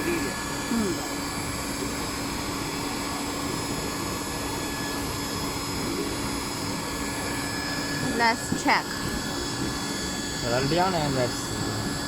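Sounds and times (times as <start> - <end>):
hot air blower humming and whining: 0.0 - 12.0.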